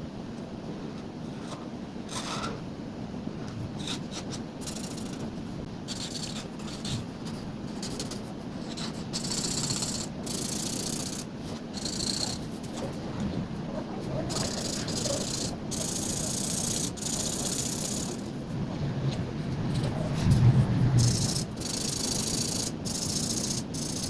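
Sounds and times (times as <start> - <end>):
low background hum: 0.0 - 24.0
coloring tool scratching on paper: 3.8 - 5.3, 5.9 - 13.0, 14.0 - 18.4, 21.0 - 24.0.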